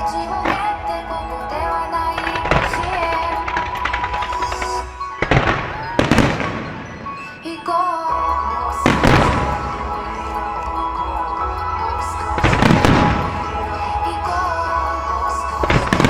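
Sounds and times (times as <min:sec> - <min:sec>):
pop song over loudspeakers: 0:00.0 - 0:16.0
fireworks booming: 0:02.2 - 0:07.4, 0:08.8 - 0:10.0, 0:12.3 - 0:14.4, 0:15.6 - 0:16.0.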